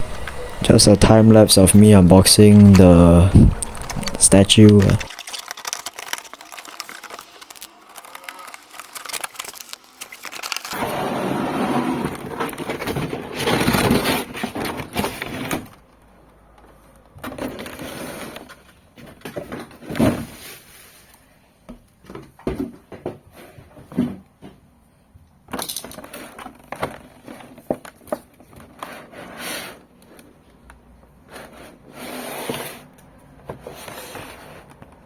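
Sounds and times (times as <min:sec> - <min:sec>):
packaging rustling and knocking: 0:02.5 - 0:10.8.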